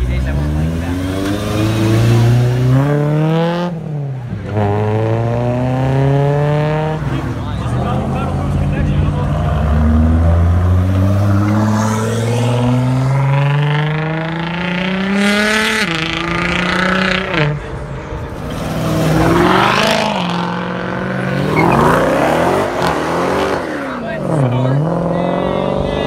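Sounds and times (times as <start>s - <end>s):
cars accelerating hard: 0.0s - 26.0s
cars revving and sweeping past: 0.0s - 26.0s.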